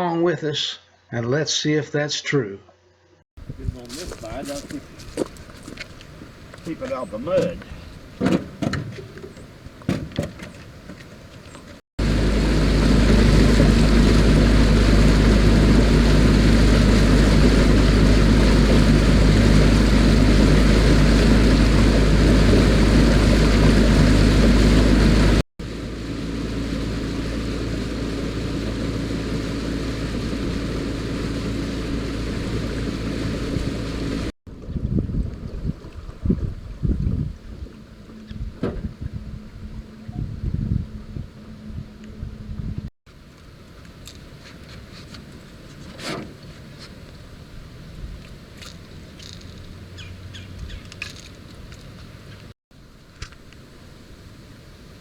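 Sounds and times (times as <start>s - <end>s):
wind buffeting microphone: 3.4s - 25.4s, 27.8s - 42.9s
handling knocks: 8.2s - 11.1s
outboard motor running: 10.6s - 42.7s.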